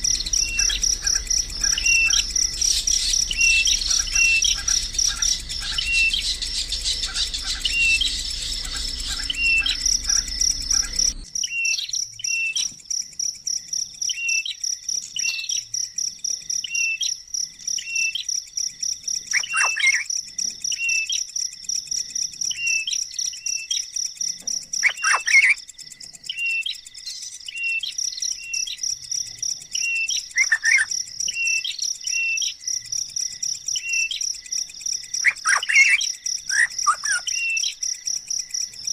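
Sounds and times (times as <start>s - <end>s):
louder falling bird calls: 0.0s - 11.2s
high insect drone: 0.0s - 38.9s
short bird chirps: 0.2s - 12.7s, 19.3s - 20.1s, 24.8s - 25.6s, 29.8s - 32.5s.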